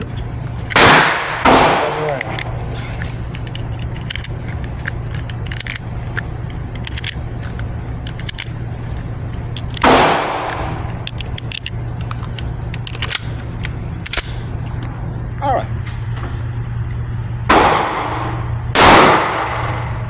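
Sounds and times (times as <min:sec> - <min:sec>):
pistol metallic clicks and rattles: 0:00.0 - 0:15.0
gunshot: 0:00.8 - 0:02.1, 0:17.5 - 0:19.9.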